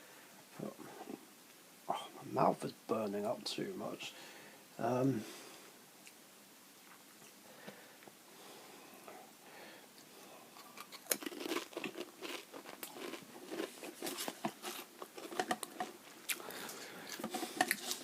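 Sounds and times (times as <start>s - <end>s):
person chewing crisps: 10.4s - 18.0s.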